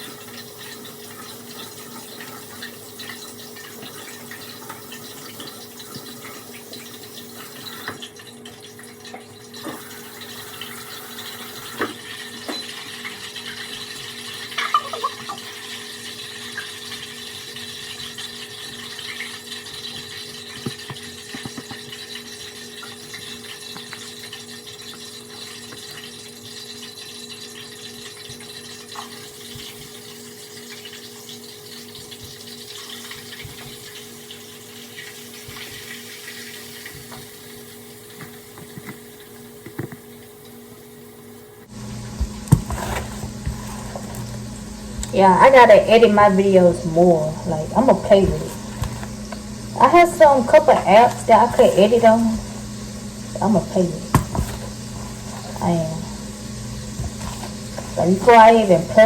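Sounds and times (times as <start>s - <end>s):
chicken sizzling in hot oil: 0.0s - 43.4s, 47.8s - 59.0s.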